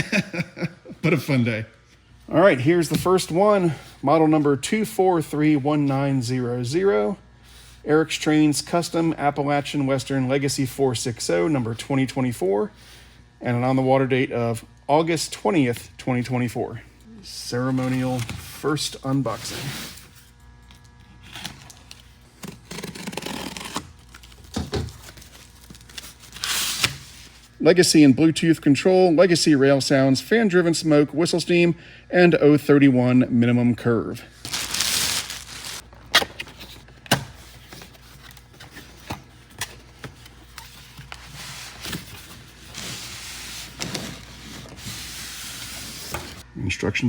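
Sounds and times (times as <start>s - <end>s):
cardboard packaging rustling: 21.2s - 27.5s, 34.4s - 46.4s.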